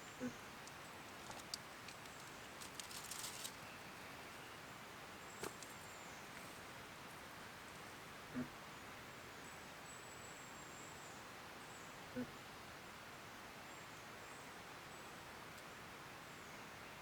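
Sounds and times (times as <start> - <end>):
faint outdoor ambience: 0.0 - 17.0
light crackling or rustling: 0.6 - 4.4, 5.3 - 8.0.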